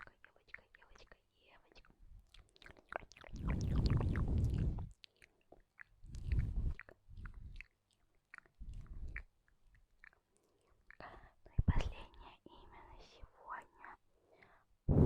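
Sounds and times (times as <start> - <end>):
wet mouth clicks and lip smacks: 0.0 - 11.0
low microphone rumble: 3.4 - 4.9.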